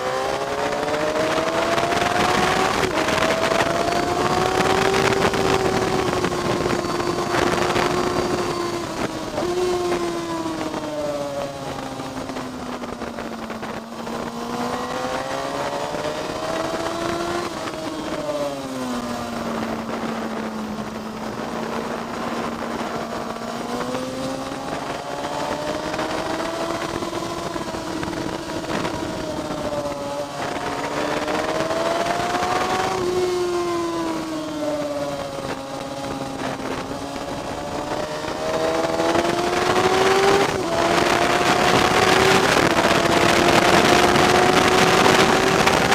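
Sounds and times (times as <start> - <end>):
race car engine accelerating: 0.0 - 45.9
wind and road noise: 0.0 - 45.9.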